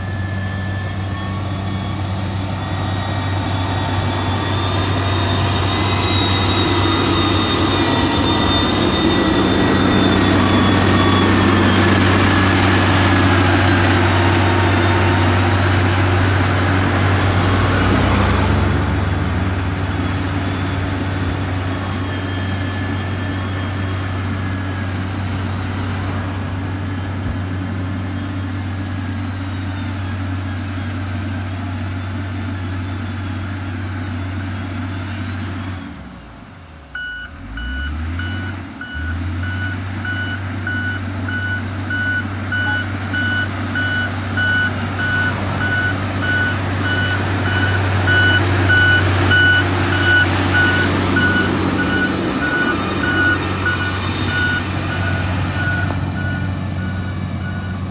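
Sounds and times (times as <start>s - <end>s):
reversing alarm beeping: 0.0s - 33.4s, 36.9s - 57.9s
diesel machine engine droning: 0.0s - 57.9s.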